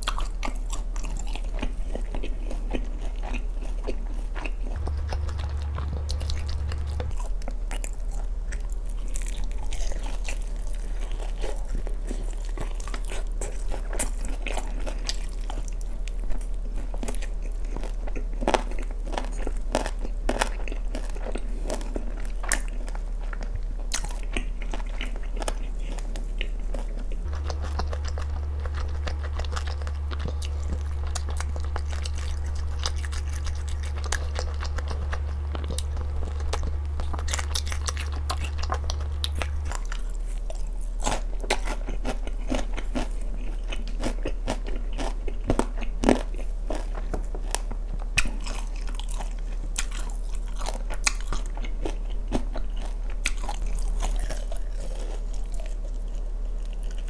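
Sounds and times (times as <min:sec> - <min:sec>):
chewing with wet mouth sounds: 0:00.0 - 0:57.0
crunching bites of fried chicken: 0:00.0 - 0:57.0
low hum: 0:04.2 - 0:14.0, 0:25.2 - 0:43.8.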